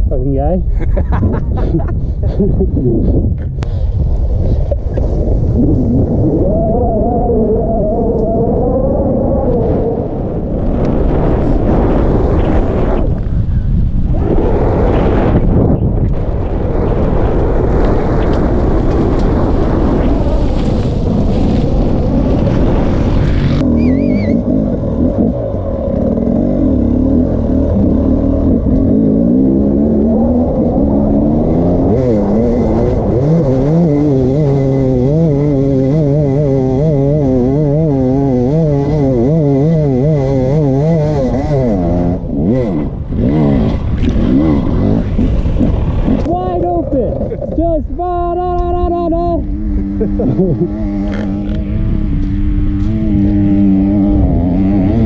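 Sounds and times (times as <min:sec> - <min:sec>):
wind on microphone: 0:00.0 - 0:55.0
dirt bike engine running hard: 0:09.6 - 0:55.0
engine revving up and down: 0:14.1 - 0:46.6, 0:49.3 - 0:55.0.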